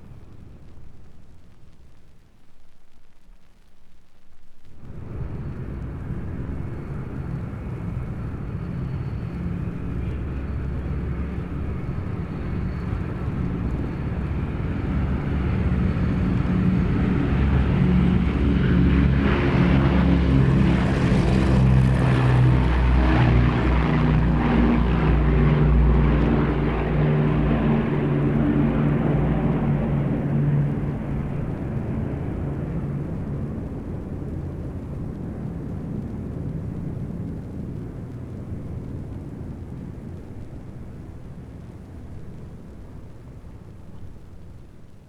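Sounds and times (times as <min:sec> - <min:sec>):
propeller aircraft taxiing: 0:04.8 - 0:45.0.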